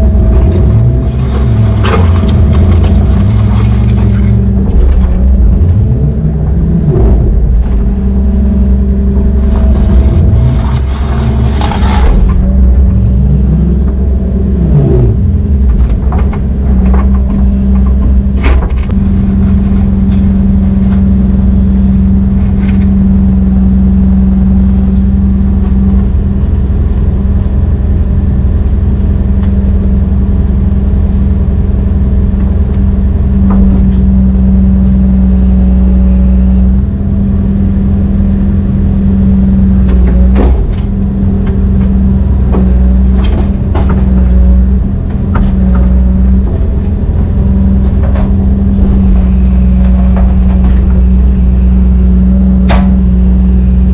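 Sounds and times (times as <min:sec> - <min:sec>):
heavy diesel engine running: 0:00.0 - 0:53.9
metallic clanks and knocks: 0:15.4 - 0:20.4.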